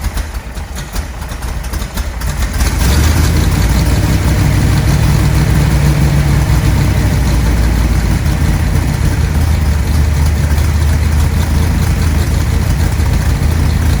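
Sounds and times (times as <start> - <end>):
car engine idling rough: 0.0 - 14.0.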